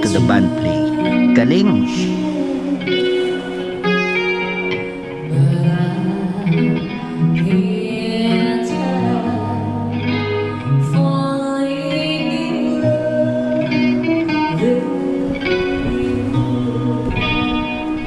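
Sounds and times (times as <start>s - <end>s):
live band playing: 0.0s - 2.1s
person singing: 0.0s - 3.7s
guitar: 0.0s - 18.0s.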